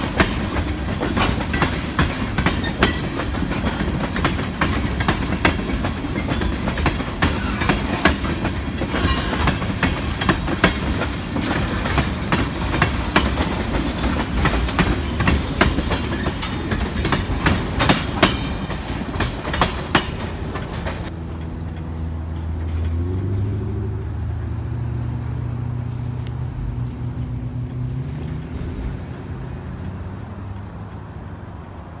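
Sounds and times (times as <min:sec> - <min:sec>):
train wheels clattering over rails: 0:00.0 - 0:23.6
diesel locomotive engine drone: 0:00.0 - 0:32.0.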